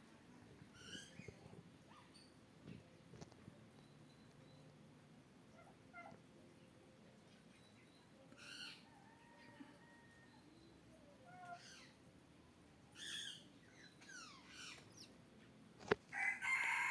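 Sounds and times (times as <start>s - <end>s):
faint bird calls: 0.7s - 2.4s, 7.3s - 12.0s, 12.9s - 15.2s.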